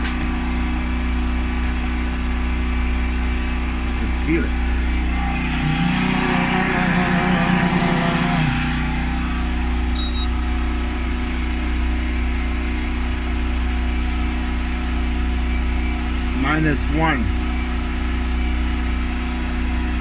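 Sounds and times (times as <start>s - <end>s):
refrigerator compressor hum: 0.0s - 20.0s
wavering pitched sound: 4.5s - 10.4s
short high electronic beep: 9.9s - 10.4s.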